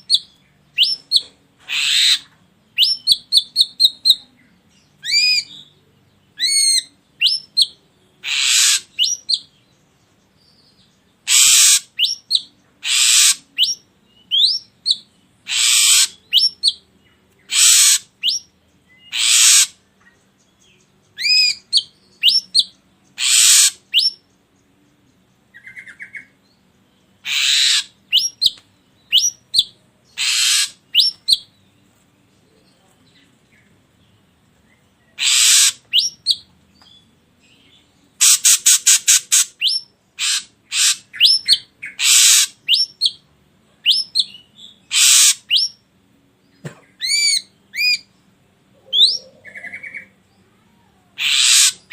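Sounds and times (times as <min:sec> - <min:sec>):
harsh rasping bird calls: 0:00.0 - 0:04.3, 0:06.4 - 0:09.5, 0:11.2 - 0:16.8, 0:17.4 - 0:19.8, 0:21.2 - 0:24.2, 0:27.2 - 0:31.5, 0:35.1 - 0:36.5, 0:38.2 - 0:45.8, 0:46.5 - 0:51.9.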